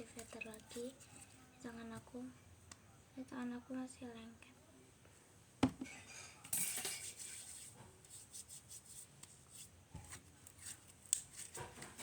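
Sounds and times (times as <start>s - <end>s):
plastic containers knocking: 5.6s - 5.9s.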